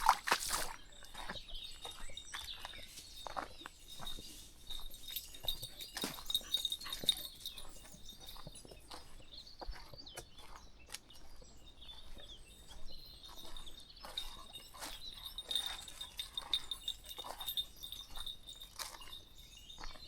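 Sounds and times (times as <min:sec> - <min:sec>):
footsteps on a path: 0:00.0 - 0:20.0.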